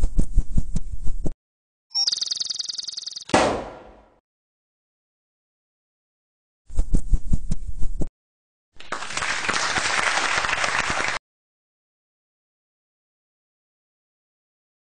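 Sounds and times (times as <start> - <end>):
applause: 8.8 - 11.2.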